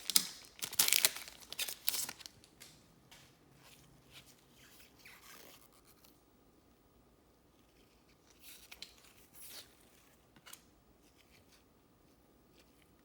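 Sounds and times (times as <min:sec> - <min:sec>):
card pack wrapper tearing: 0:00.0 - 0:02.7
cards rustling: 0:00.0 - 0:02.8.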